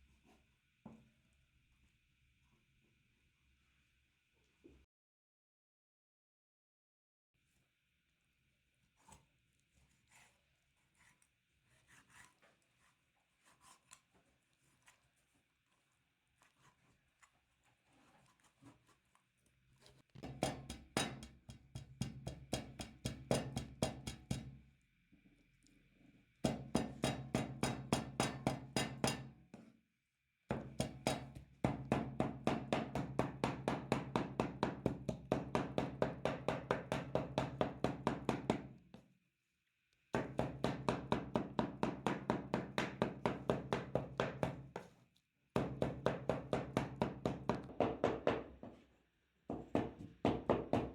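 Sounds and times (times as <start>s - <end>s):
meat being pounded: 20.2s - 24.6s, 26.4s - 29.3s, 30.5s - 38.8s, 40.2s - 44.8s, 45.6s - 48.4s, 49.7s - 50.9s.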